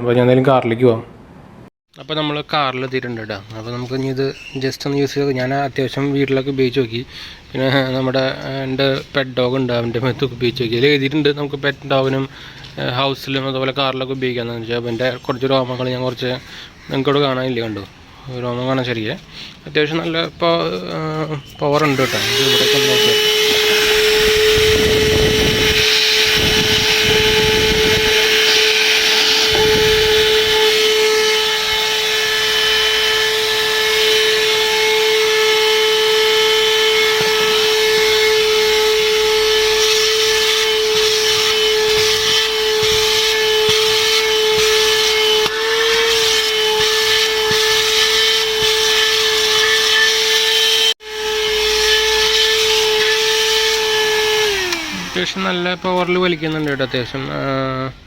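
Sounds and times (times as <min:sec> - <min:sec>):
nozzle scraping and sucking: 0:21.4 - 0:57.8
handheld vacuum motor whine: 0:21.7 - 0:56.8.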